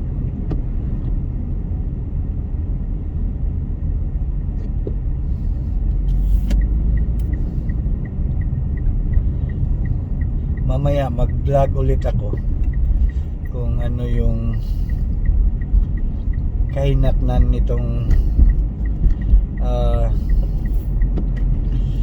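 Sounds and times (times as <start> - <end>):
car driving rumble: 0.0 - 22.0
turn signal ticking: 4.6 - 22.0.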